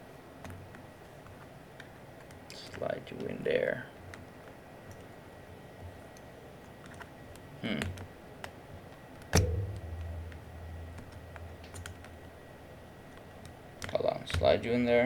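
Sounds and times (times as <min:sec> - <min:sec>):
dull thud: 0:09.4 - 0:12.2
loud sharp click: 0:09.4 - 0:12.2.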